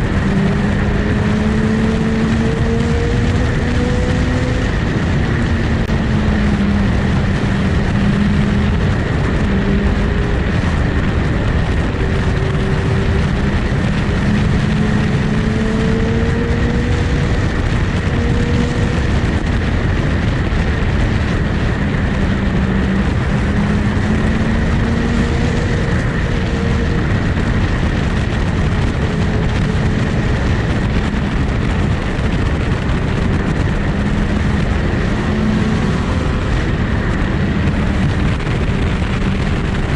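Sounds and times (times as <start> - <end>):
motorcycle engine drone: 0.0 - 39.9
rush of noise: 0.0 - 39.9.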